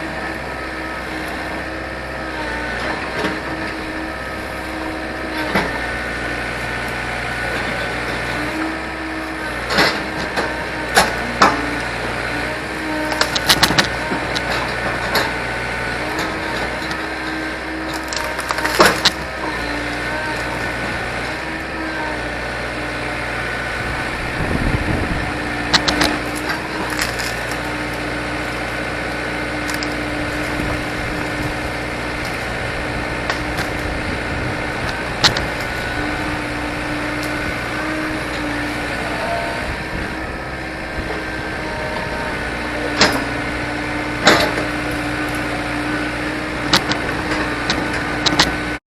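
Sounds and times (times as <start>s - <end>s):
machine engine running: 0.0s - 48.8s
sharp knocks and cracks: 13.1s - 15.3s, 17.9s - 19.2s, 25.7s - 28.0s, 35.2s - 35.7s, 46.7s - 48.6s.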